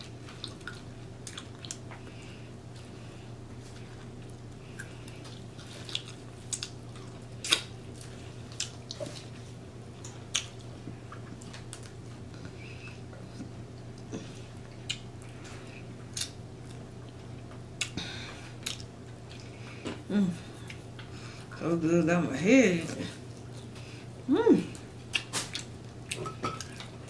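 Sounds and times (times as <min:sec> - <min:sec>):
steady low hum: 0:00.0 - 0:27.0
wet chewing: 0:00.1 - 0:03.0, 0:03.6 - 0:18.0, 0:18.6 - 0:21.6, 0:24.7 - 0:27.0
lip smacks: 0:07.4 - 0:07.7, 0:14.8 - 0:15.1, 0:25.1 - 0:26.8.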